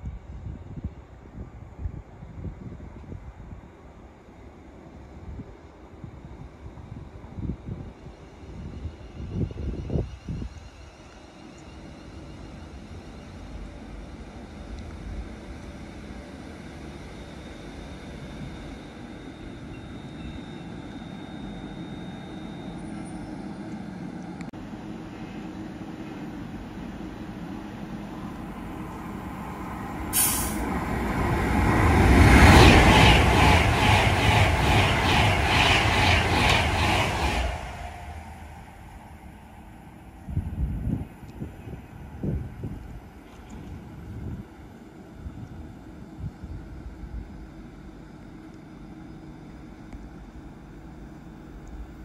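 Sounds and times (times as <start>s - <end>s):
train rumbling: 0.0s - 52.0s
short sharp hiss: 30.1s - 30.7s.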